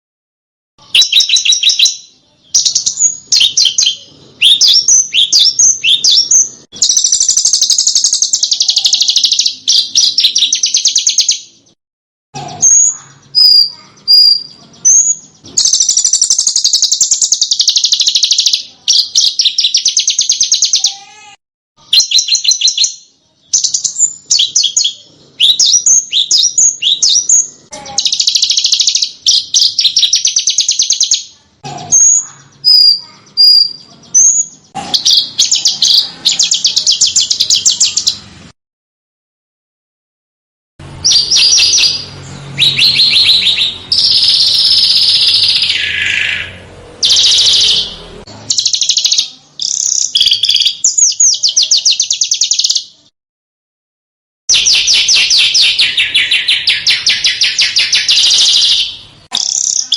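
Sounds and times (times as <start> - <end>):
songbird trilling and chirping: 0.8 - 11.8, 12.4 - 38.2, 41.0 - 53.1, 54.5 - 59.9.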